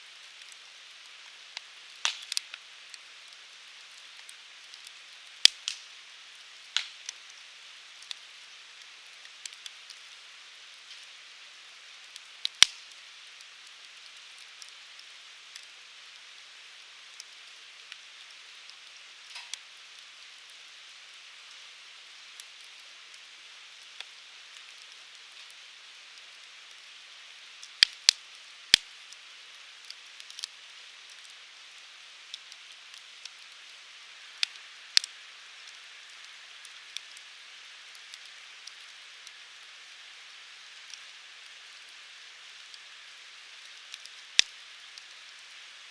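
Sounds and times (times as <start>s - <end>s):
fire hissing: 0.1s - 8.5s
firewood crackling and popping: 0.1s - 45.9s.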